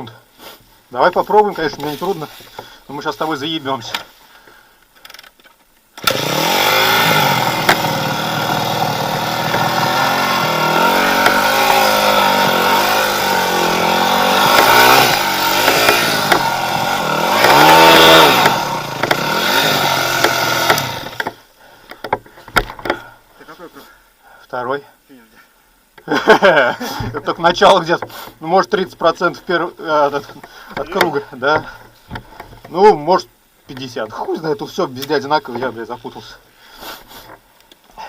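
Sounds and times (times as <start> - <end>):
motorcycle engine revving: 6.0 - 21.2.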